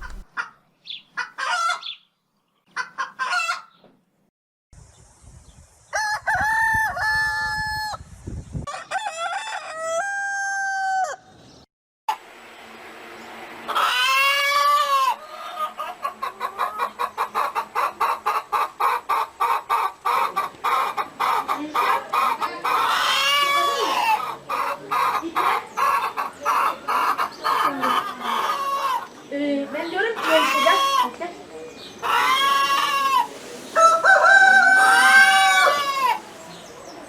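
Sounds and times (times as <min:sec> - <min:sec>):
hens clucking: 0:00.0 - 0:00.5, 0:13.7 - 0:37.0
rooster crowing: 0:08.7 - 0:11.3, 0:32.1 - 0:36.4.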